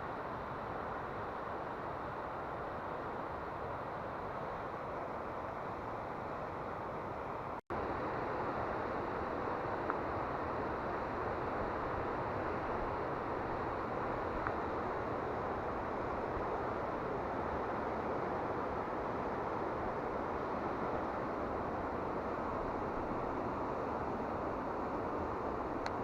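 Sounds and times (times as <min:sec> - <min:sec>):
mountain stream rushing: 0:00.0 - 0:26.0.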